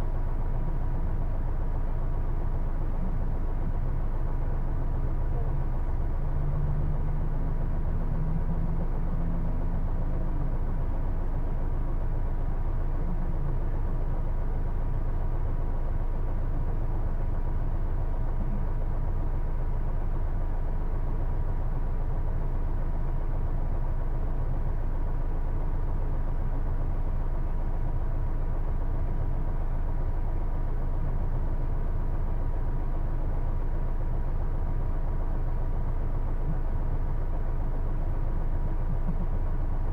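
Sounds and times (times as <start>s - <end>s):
bus engine running: 0.0s - 39.9s.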